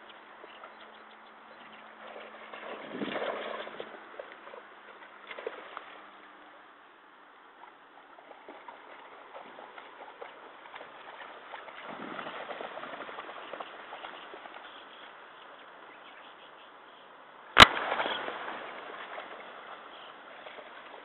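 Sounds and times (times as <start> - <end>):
dog splashing in shallow water: 1.8 - 6.1, 7.6 - 15.2, 17.6 - 21.0
water rushing: 17.5 - 21.0.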